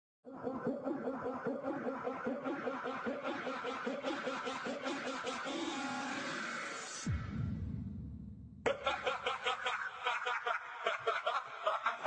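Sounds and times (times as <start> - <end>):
person laughing: 0.3 - 6.2, 8.7 - 12.0.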